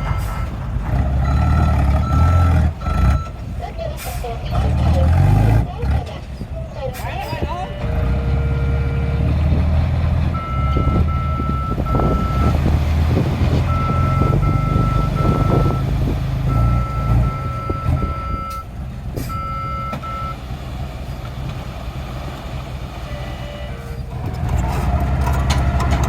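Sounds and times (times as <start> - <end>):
truck reversing alarm beeping: 0.0 - 5.4, 7.2 - 9.3, 10.3 - 21.2, 23.0 - 24.4
truck engine running: 0.0 - 26.0.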